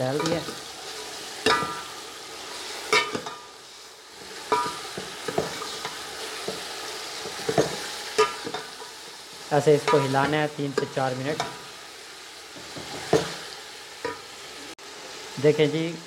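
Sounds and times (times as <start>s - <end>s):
chicken sizzling in ghee: 0.0s - 16.0s
metal spoon knocking and scraping pot: 4.5s - 8.7s.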